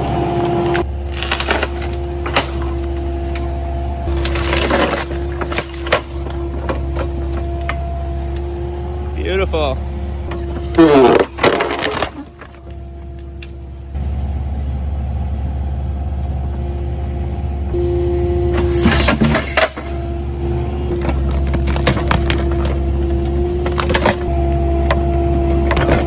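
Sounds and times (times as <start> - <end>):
excavator diesel engine whine: 0.0 - 26.0
wood cracking and snapping: 0.8 - 3.5, 4.1 - 8.6, 10.7 - 13.6.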